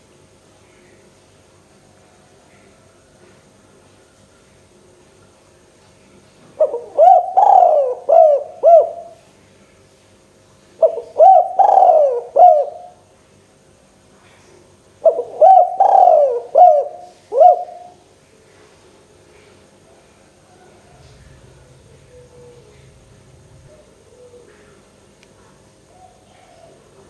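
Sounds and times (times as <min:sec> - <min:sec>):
dove cooing: 0:06.6 - 0:09.2, 0:10.8 - 0:13.0, 0:15.0 - 0:18.0, 0:20.5 - 0:25.0, 0:25.8 - 0:27.0.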